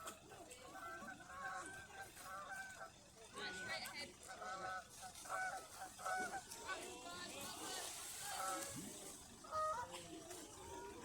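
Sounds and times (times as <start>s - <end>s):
geese honking: 0.7s - 6.8s, 9.4s - 10.0s.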